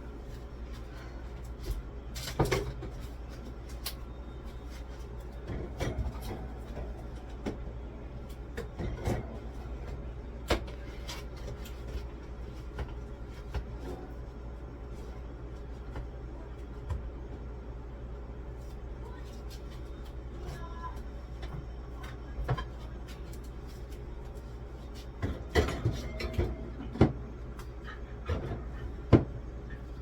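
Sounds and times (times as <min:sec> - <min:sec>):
steady low hum: 0:00.0 - 0:30.0
freezer bins knocking and clunking: 0:25.2 - 0:27.3, 0:28.3 - 0:29.4.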